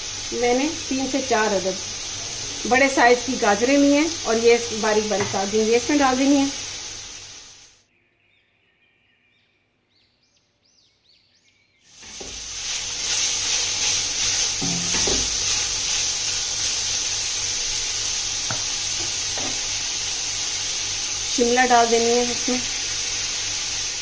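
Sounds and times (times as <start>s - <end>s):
food sizzling in a pan: 0.0s - 7.8s, 11.9s - 24.0s
spatula scraping a pan: 12.0s - 16.8s.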